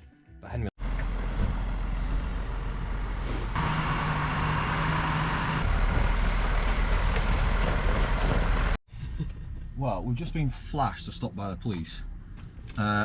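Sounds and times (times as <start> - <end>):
truck engine drone: 0.8 - 9.6.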